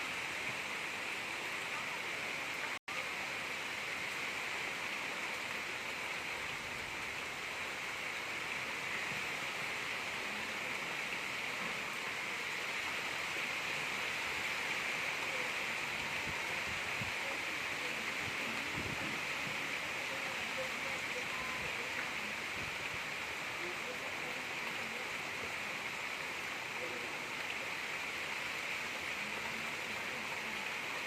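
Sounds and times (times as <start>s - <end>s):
gentle rain hissing: 0.0s - 31.0s.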